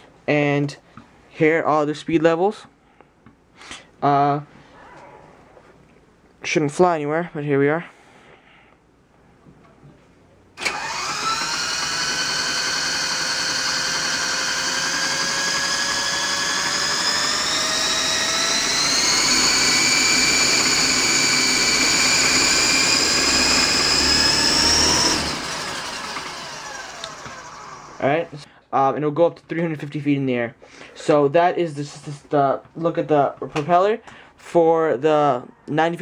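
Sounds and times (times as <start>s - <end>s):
model helicopter rotor whine: 10.6s - 28.4s.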